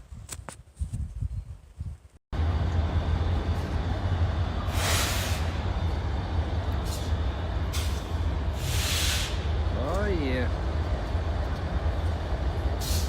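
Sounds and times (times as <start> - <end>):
vehicle engine rumbling: 2.4 - 13.0
hissing rush: 4.6 - 5.8, 6.8 - 9.7.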